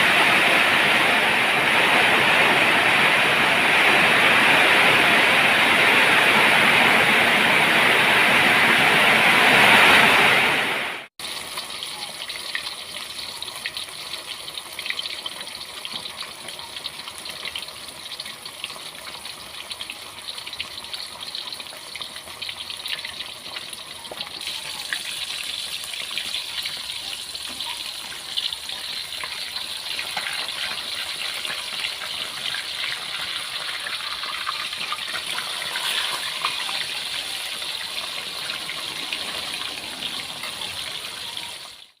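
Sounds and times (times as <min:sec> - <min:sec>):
heavy rain rushing: 0:00.0 - 0:11.1, 0:36.7 - 0:42.0
rain drips and patter: 0:10.6 - 0:42.0.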